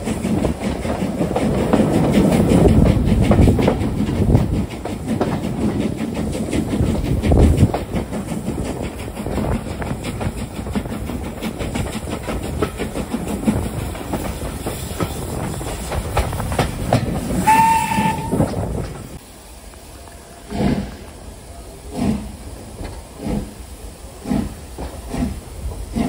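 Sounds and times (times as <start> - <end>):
train wheels clicking over track: 0.0 - 26.0
steam whistle: 17.4 - 18.6.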